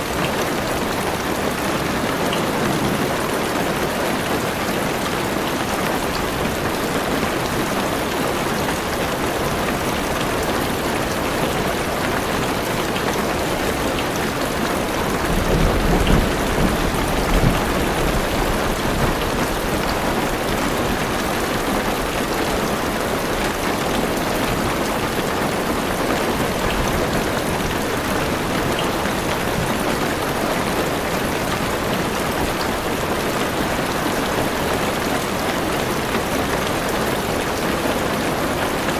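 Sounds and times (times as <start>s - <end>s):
heavy rain on car roof: 0.0s - 38.9s
thunder rumbling: 1.1s - 5.0s, 14.8s - 21.1s.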